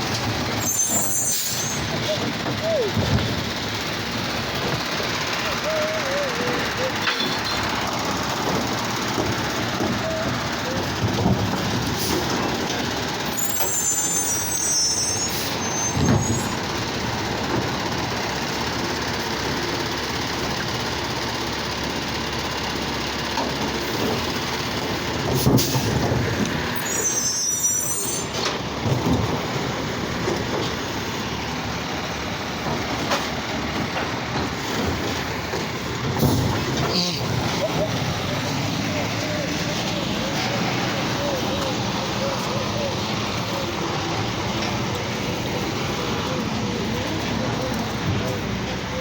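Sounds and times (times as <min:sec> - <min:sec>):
garbage truck engine running: 0:00.0 - 0:49.0
high wavering squeals: 0:00.6 - 0:03.0, 0:13.4 - 0:16.6, 0:26.8 - 0:28.4.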